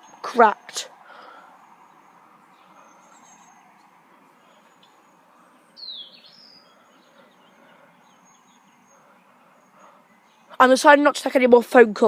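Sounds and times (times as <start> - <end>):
bird chirp: 0.0 - 12.0.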